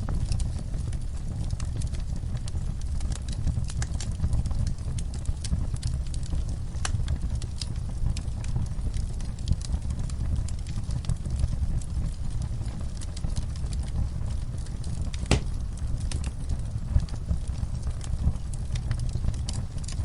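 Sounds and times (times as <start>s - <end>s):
low rumble of flames: 0.0s - 20.0s
wood fire crackling: 0.0s - 20.0s
sharp pop of fire: 15.1s - 15.6s.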